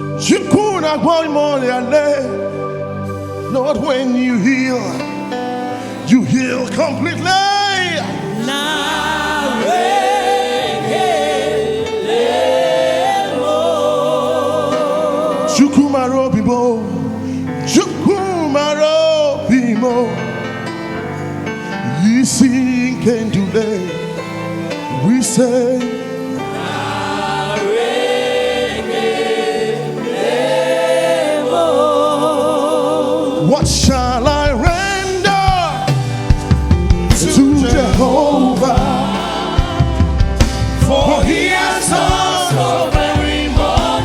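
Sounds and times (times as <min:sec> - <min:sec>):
gospel choir singing: 0:00.0 - 0:44.0
band accompaniment: 0:33.4 - 0:44.0.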